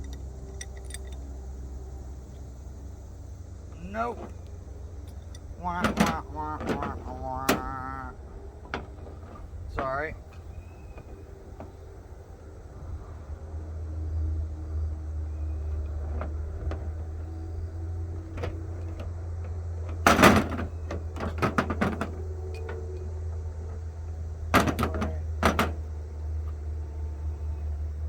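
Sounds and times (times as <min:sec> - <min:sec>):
plumbing parts and tools clanking: 0:00.0 - 0:01.3, 0:03.6 - 0:13.1, 0:14.0 - 0:27.7
steady low hum: 0:00.0 - 0:28.0.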